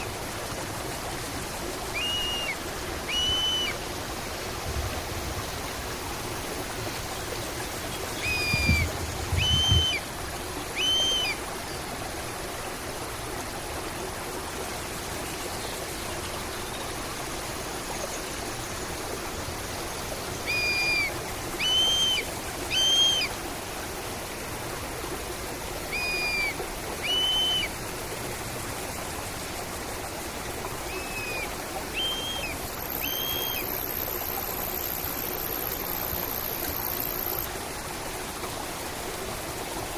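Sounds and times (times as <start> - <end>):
stream running water: 0.0 - 39.9
bird call: 1.9 - 3.8, 8.1 - 10.1, 10.7 - 11.4, 20.4 - 23.4, 25.9 - 27.7, 30.8 - 37.5
high-pitched steady tone: 32.4 - 37.5.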